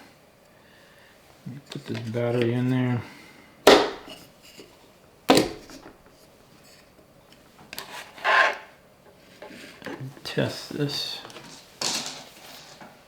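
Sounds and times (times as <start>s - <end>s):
sharp knocks: 3.7s - 4.2s, 5.3s - 6.0s
scraping rustle: 11.2s - 13.0s.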